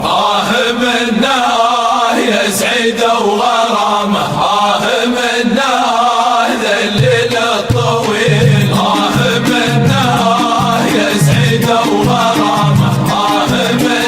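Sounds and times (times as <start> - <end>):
voices chanting: 0.0 - 14.0
steady low drone: 7.8 - 13.9.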